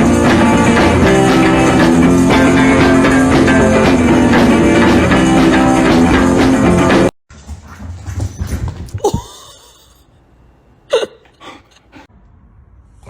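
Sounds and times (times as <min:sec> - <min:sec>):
rock music with guitar and drums: 0:00.0 - 0:07.1.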